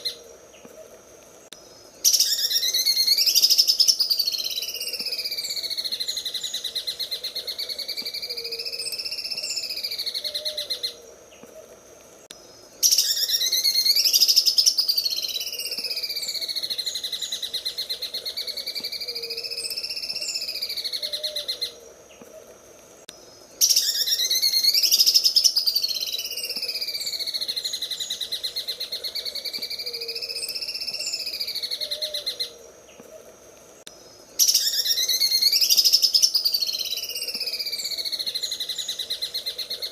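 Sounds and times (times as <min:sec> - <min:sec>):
bird singing chattering trill: 0:12.8 - 0:21.8.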